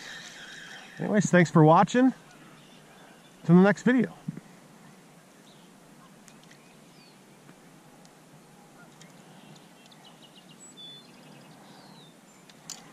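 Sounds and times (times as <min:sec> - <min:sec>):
outdoor background noise: 0:00.0 - 0:12.9
small birds chirping: 0:02.2 - 0:12.9.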